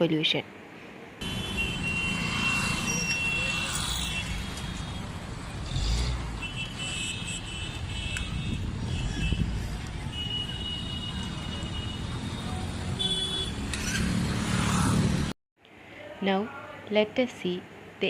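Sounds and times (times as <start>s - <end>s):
car horns honking: 1.2s - 13.8s
vehicle engines rumbling: 1.2s - 15.3s.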